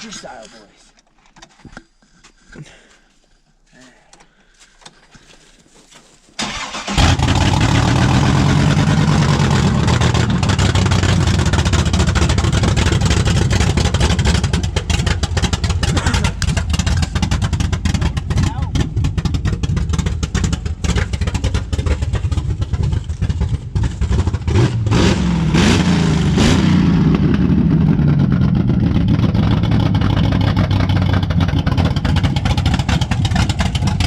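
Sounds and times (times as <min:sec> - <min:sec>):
starter cranking: 0:06.4 - 0:24.3
truck engine choppy idle: 0:06.4 - 0:24.9, 0:27.2 - 0:34.0.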